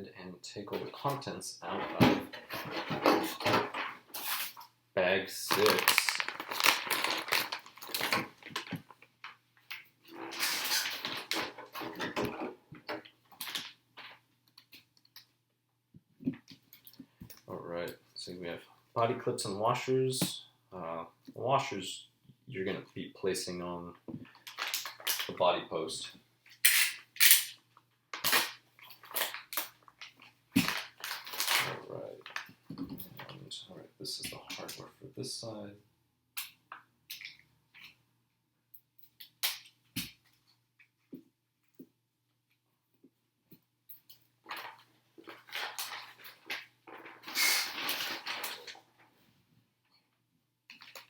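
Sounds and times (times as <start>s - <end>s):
plastic bag crinkling: 5.4s - 9.1s, 28.2s - 32.5s, 44.5s - 49.0s.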